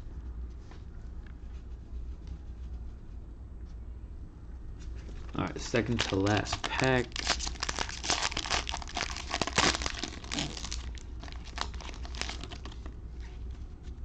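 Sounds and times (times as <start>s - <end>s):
card pack wrapper tearing: 5.4s - 12.9s.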